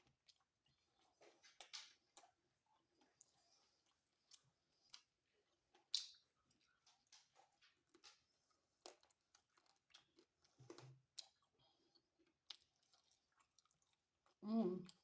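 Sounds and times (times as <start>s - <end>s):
chewing food: 0.0s - 15.0s.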